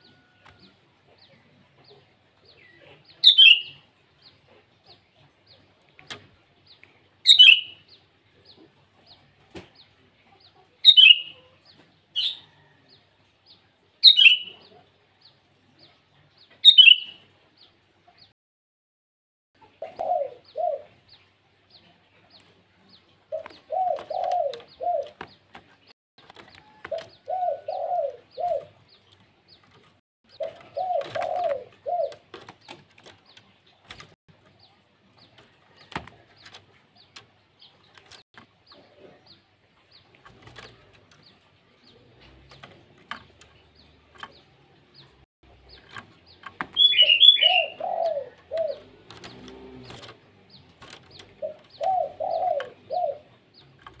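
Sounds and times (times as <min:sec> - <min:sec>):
high-pitched bird call: 0:16.7 - 0:17.2, 0:46.8 - 0:47.8.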